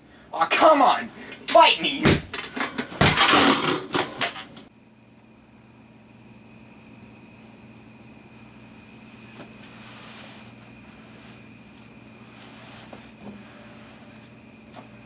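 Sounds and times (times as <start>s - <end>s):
steady electrical hum: 0.0s - 15.0s
thumps and clattering of fight: 2.0s - 4.2s.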